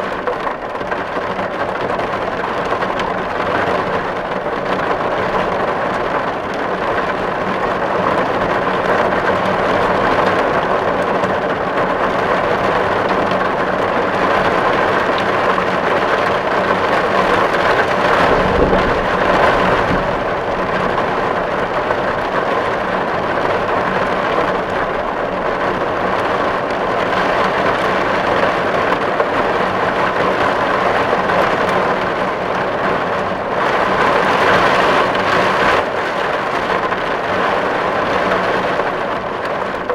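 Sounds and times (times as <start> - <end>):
rain drumming on a tin roof: 0.0 - 39.9
brief low rumble: 18.1 - 21.0.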